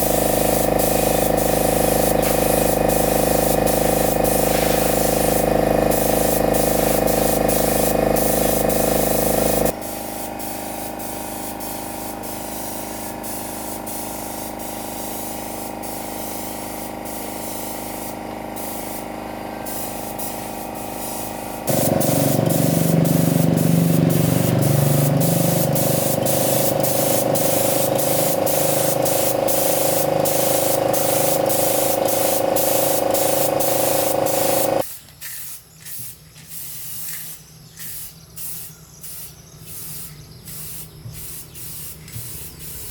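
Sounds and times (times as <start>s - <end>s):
spray gun hissing: 0.0s - 37.0s, 38.0s - 42.9s
motor humming: 21.7s - 34.8s.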